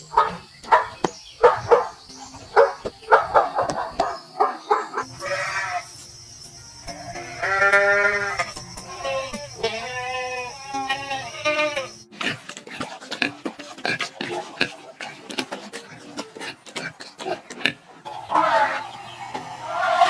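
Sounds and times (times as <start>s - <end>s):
goat or sheep bleating: 5.2s - 5.9s, 6.9s - 12.0s.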